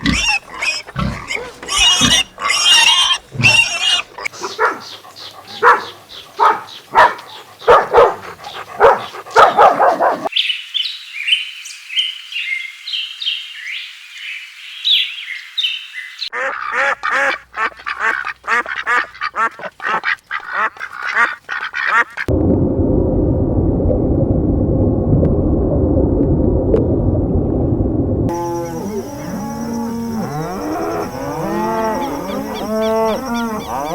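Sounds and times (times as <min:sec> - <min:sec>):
duck quacking: 0:00.0 - 0:04.8, 0:16.3 - 0:22.3
dog barking: 0:01.3 - 0:01.6, 0:04.2 - 0:10.3.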